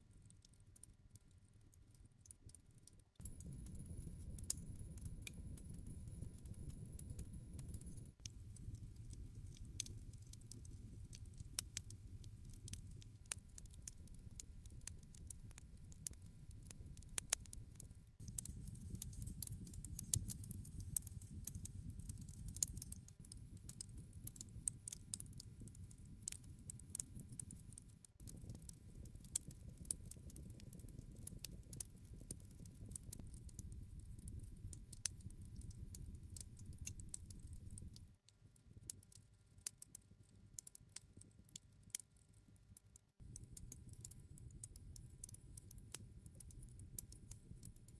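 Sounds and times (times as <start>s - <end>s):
campfire crackling and popping: 2.4s - 40.0s, 43.3s - 47.8s
low rumble of flames: 3.2s - 38.2s.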